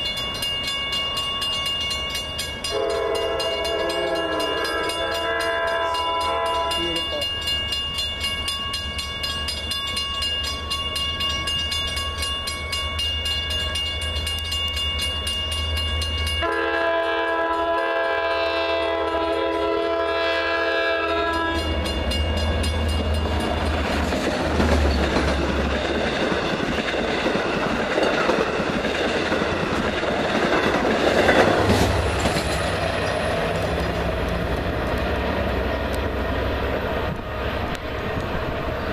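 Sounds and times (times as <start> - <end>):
train clatter: 0.0 - 38.9
train wheels rushing on rails: 0.0 - 38.9
train air horn chord: 2.7 - 7.0, 16.4 - 21.7.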